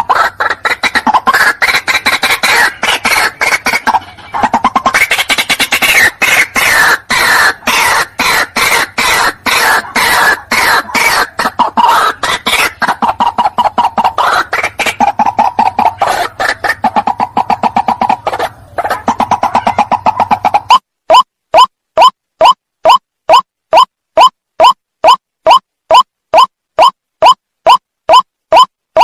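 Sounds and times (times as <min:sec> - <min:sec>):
waterhen calling harsh notes: 0:00.0 - 0:29.0.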